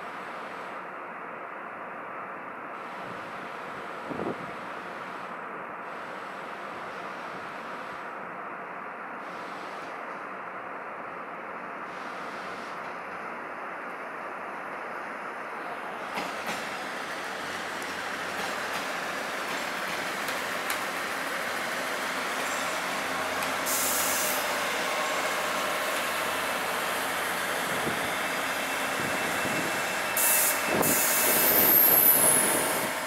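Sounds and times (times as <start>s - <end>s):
train running on rails: 0.0s - 33.0s
high hiss bursts: 18.1s - 33.0s.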